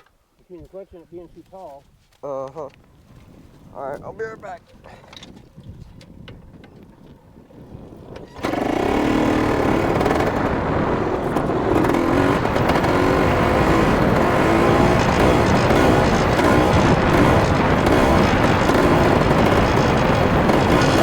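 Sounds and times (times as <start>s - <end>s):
dirt bike engine revving: 7.6s - 21.0s.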